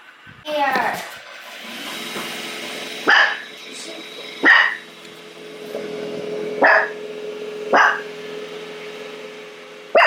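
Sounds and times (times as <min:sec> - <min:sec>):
robot vacuum humming: 0:01.0 - 0:10.0
dog barking: 0:03.1 - 0:03.4, 0:04.4 - 0:04.8, 0:06.6 - 0:07.0, 0:07.7 - 0:08.1.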